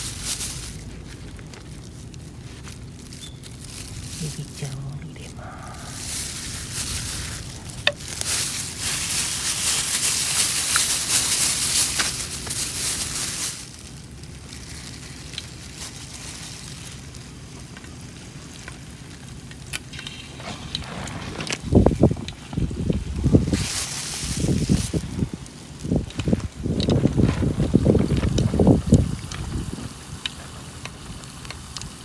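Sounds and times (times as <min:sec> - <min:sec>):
oil crackling: 0:00.0 - 0:32.0
shrimp sizzling in hot oil: 0:05.9 - 0:20.8.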